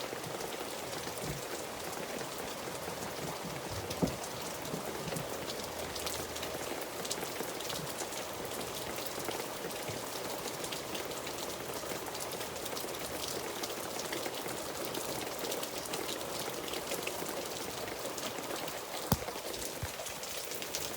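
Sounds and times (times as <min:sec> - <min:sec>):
steady rain falling: 0:00.0 - 0:20.9.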